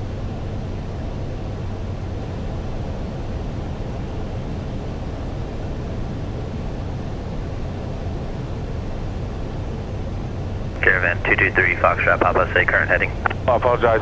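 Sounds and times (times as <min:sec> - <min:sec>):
propeller engine drone: 0:10.7 - 0:14.0.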